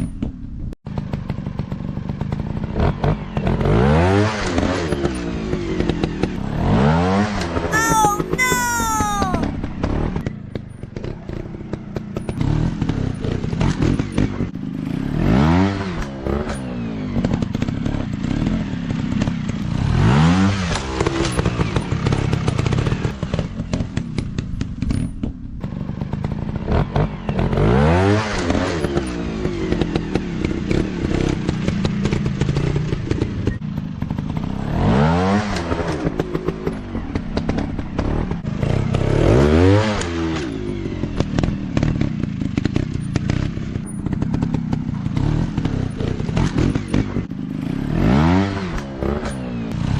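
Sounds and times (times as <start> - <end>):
engine clattering and knocking: 41.2 - 47.3
dirt bike engine revving: 45.2 - 49.9.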